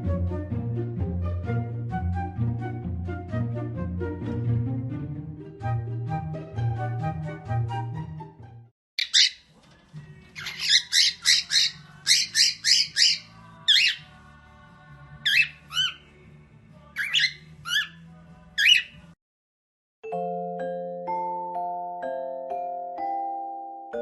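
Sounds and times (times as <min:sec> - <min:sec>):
parrot squawking: 0:09.0 - 0:09.5, 0:10.4 - 0:14.1, 0:15.2 - 0:16.1, 0:17.0 - 0:19.1.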